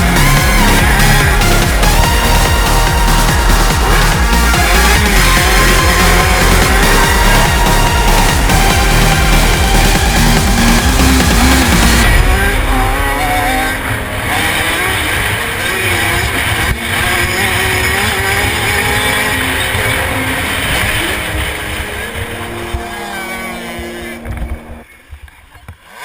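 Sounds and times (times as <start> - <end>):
music: 0.0 - 24.8
dirt bike engines: 0.0 - 26.0.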